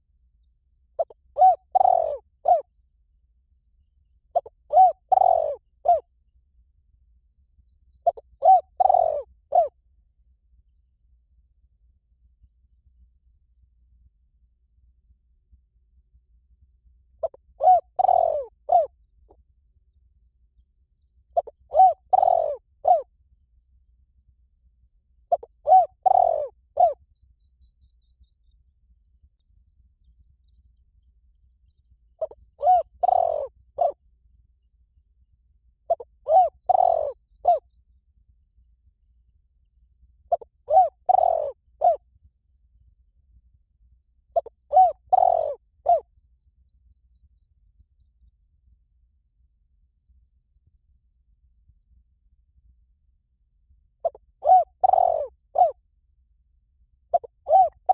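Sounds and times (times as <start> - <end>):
dove cooing: 1.0 - 2.6, 4.3 - 6.0, 8.0 - 9.7, 17.2 - 18.9, 21.4 - 23.0, 25.3 - 27.0, 32.2 - 34.0, 35.9 - 37.6, 40.3 - 42.0, 44.4 - 46.0, 54.0 - 55.8, 57.1 - 57.9.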